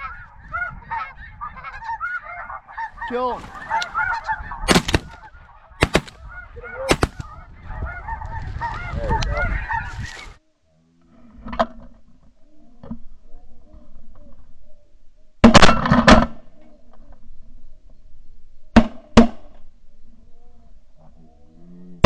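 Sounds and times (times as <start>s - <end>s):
faint geese calling: 0.0s - 10.2s
shotgun blasts: 3.3s - 4.0s, 4.7s - 5.2s, 5.8s - 6.2s, 6.9s - 7.3s.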